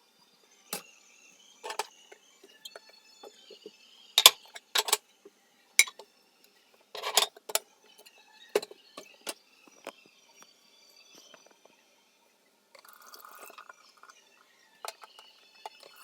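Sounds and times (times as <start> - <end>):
household objects clinking and knocking: 1.6 - 2.0, 2.7 - 5.0, 5.8 - 6.0, 6.9 - 7.6.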